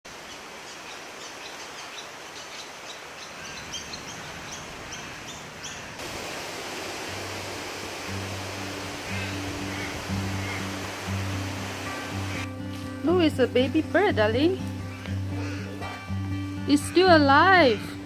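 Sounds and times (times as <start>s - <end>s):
background hiss: 0.1s - 18.0s
low sustained music notes: 7.0s - 18.0s.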